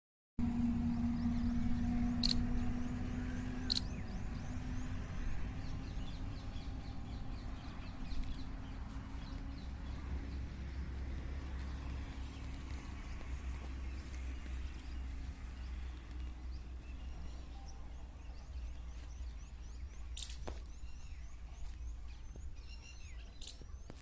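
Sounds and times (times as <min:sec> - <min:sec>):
sharp high-pitched calls: 0:02.2 - 0:02.5, 0:03.6 - 0:03.9
faint bird chirps: 0:02.2 - 0:02.6, 0:15.8 - 0:24.0.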